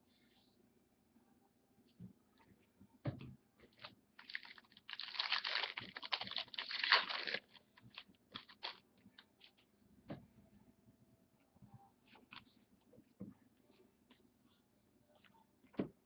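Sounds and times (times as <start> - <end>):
wrapper crackling torn open: 4.2 - 8.8.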